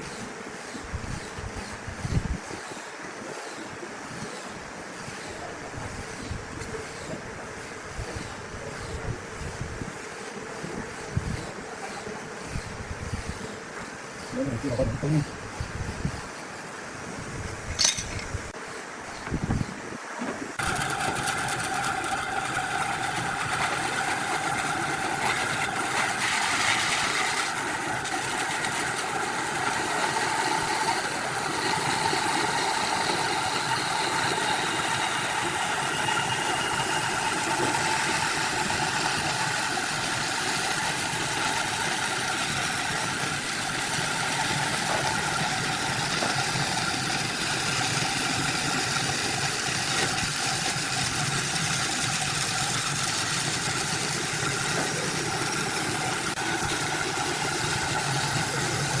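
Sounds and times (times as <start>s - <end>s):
motor-driven machine humming: 0.0s - 59.0s.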